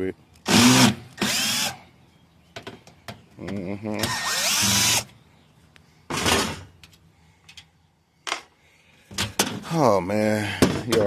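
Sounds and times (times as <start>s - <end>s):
power drill whining: 0.5s - 1.8s, 4.1s - 5.1s.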